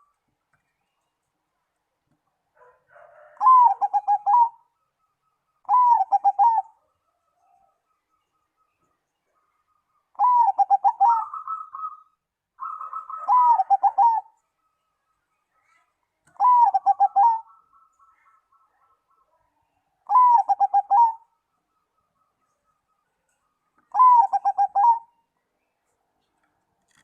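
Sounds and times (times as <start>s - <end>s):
dove cooing: 2.6s - 4.7s, 5.6s - 7.8s, 10.2s - 14.4s, 16.3s - 17.9s, 20.0s - 21.4s, 23.9s - 25.2s.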